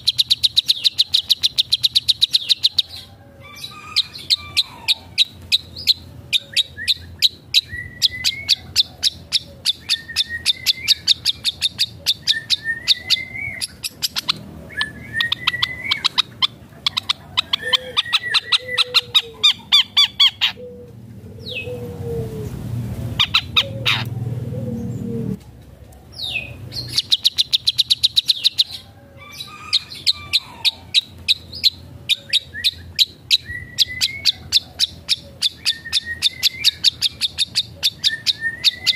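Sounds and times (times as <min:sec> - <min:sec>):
shrike singing: 0:00.0 - 0:20.8, 0:26.2 - 0:38.9.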